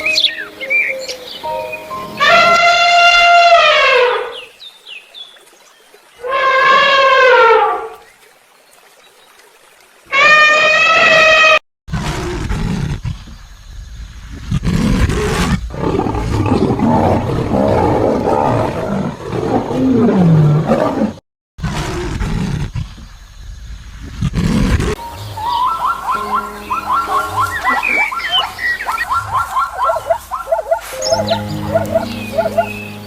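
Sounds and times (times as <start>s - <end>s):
big cat growling and roaring: 10.6s - 13.4s, 14.3s - 23.0s
high pitched call: 25.0s - 29.7s.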